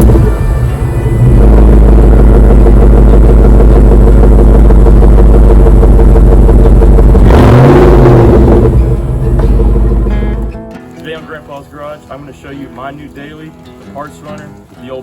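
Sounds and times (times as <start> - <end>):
car engine idling and revving: 0.0 - 10.6.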